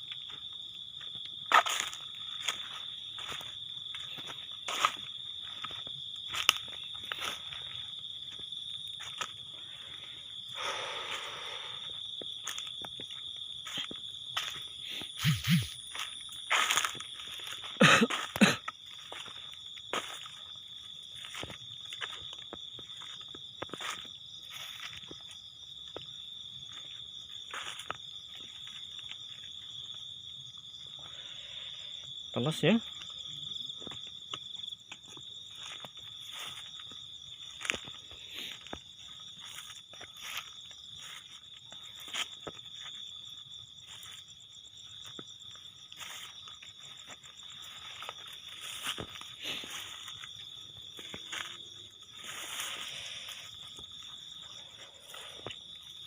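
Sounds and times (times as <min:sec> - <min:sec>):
footsteps crunching through vegetation: 0:00.0 - 0:31.0, 0:32.9 - 0:56.0
high-pitched insect trill: 0:00.0 - 0:56.0
insect pulsing trill: 0:10.4 - 0:22.2.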